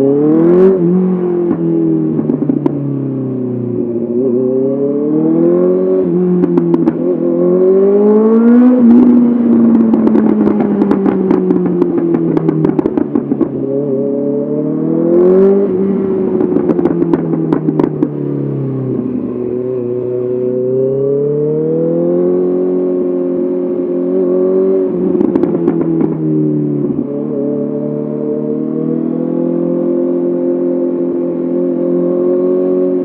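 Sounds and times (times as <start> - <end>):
motorcycle engine revving: 0.0 - 33.0
exhaust popping and crackling: 0.8 - 3.0, 6.0 - 7.4, 8.5 - 14.2, 15.2 - 20.6, 24.9 - 27.3.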